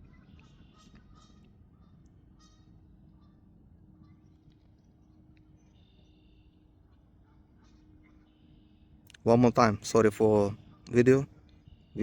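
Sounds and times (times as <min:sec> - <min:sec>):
faint short bird calls: 0:00.1 - 0:04.4.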